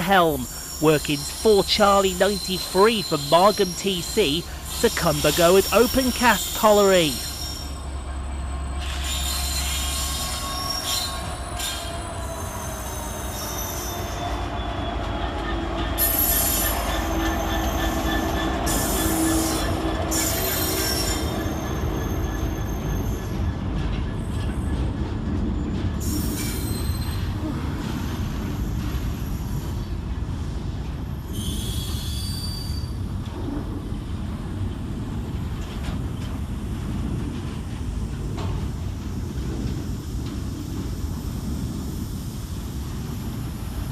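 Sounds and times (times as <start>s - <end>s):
diesel locomotive engine: 0.0s - 43.9s
train rolling rumble: 0.0s - 43.9s
wagon wheels squealing: 8.8s - 14.1s.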